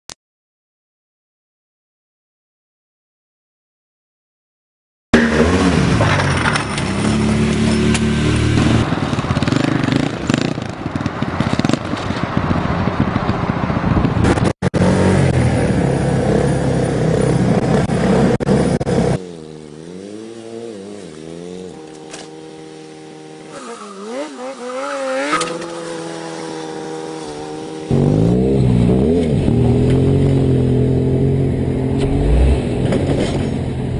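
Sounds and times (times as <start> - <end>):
engine revving up and down: 5.2 - 10.6, 14.2 - 33.9
motorcycle engines running: 5.2 - 33.9.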